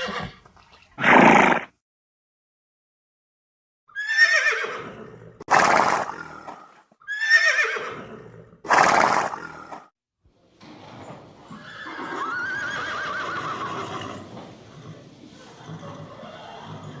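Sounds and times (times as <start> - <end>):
horse whinnying: 0.0 - 1.7, 3.9 - 9.8, 11.4 - 17.0
horse snorting: 0.1 - 1.7, 4.8 - 6.8, 7.9 - 9.8, 12.9 - 17.0.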